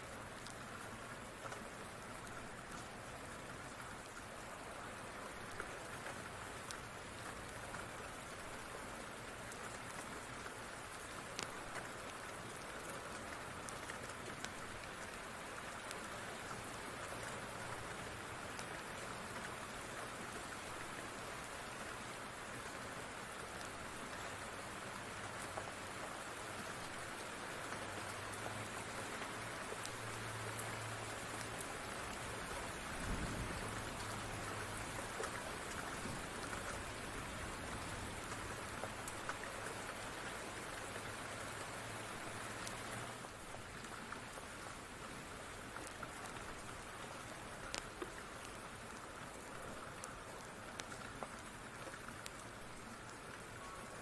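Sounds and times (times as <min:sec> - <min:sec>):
steady rain falling: 0:00.0 - 0:54.0
sharp ticks and pops: 0:11.3 - 0:14.9, 0:45.7 - 0:53.4.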